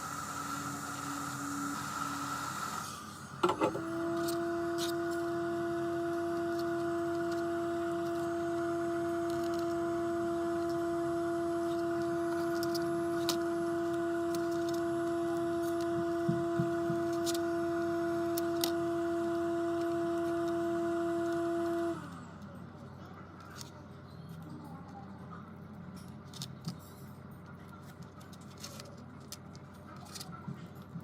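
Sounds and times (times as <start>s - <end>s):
machine humming: 3.4s - 4.4s.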